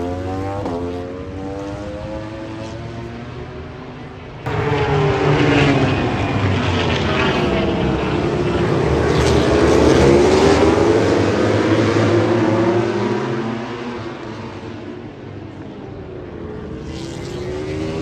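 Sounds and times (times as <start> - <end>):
racing motorcycle engine high revs: 0.0 - 3.2.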